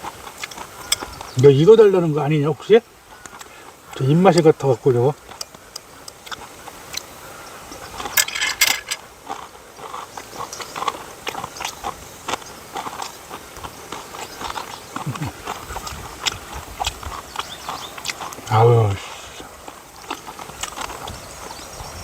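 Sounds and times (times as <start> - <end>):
dog chewing and crunching food: 8.9 - 21.7.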